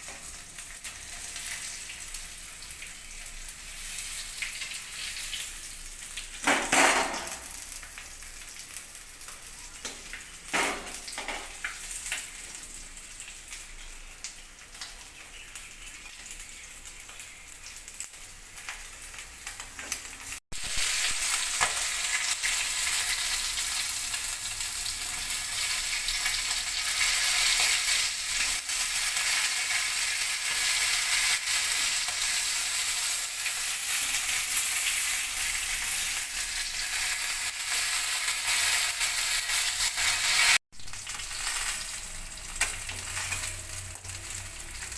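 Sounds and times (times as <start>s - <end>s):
fish sizzling in oil: 0.0s - 44.9s.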